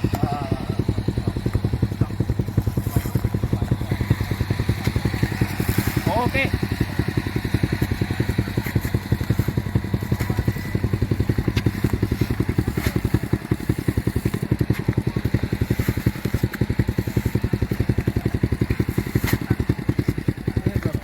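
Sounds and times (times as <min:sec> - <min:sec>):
small engine chugging steadily: 0:00.0 - 0:21.0.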